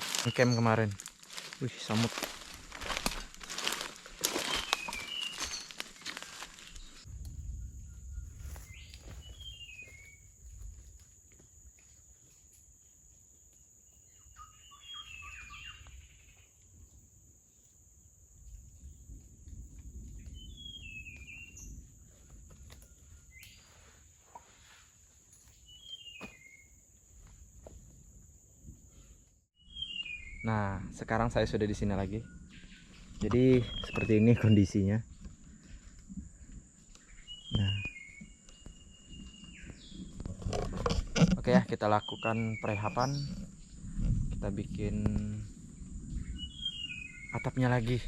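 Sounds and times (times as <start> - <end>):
bird chirping: 3.6 - 10.3, 13.8 - 16.6, 25.5 - 26.8, 29.6 - 48.0.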